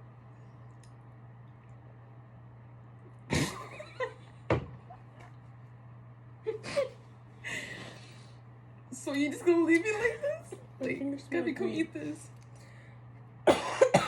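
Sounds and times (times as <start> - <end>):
steady low hum: 0.0 - 14.0
person coughing or gasping: 3.3 - 3.8, 13.4 - 14.0.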